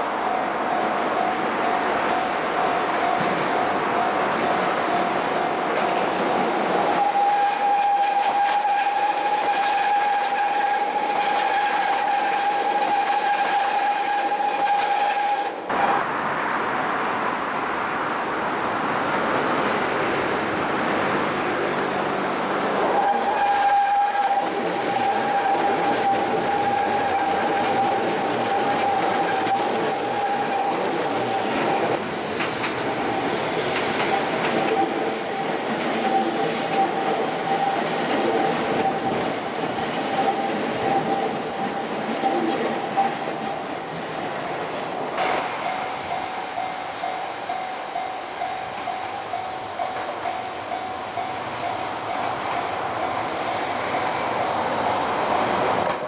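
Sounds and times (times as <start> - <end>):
level-crossing warning bell: 0.0 - 9.0, 23.0 - 32.0, 45.2 - 56.0
electric train passing: 0.0 - 56.0.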